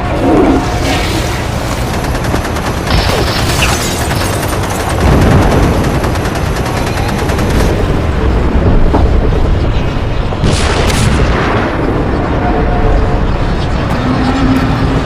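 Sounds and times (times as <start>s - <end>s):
rapid machine-gun fire: 1.7s - 8.2s.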